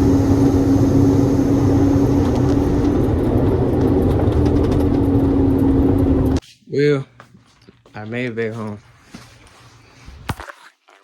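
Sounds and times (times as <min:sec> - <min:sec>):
constant hum: 0:00.0 - 0:06.4
truck engine and road drone: 0:00.0 - 0:06.4.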